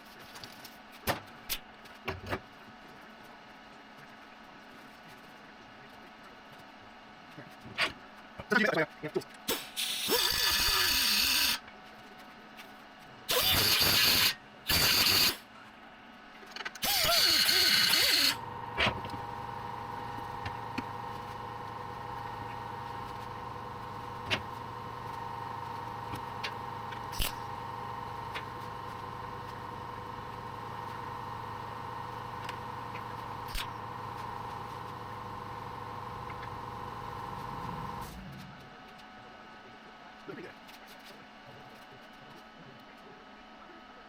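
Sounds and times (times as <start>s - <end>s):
welder bursts: 9.5s - 11.6s, 13.3s - 15.4s, 16.8s - 19.4s
steady hum: 16.8s - 38.7s.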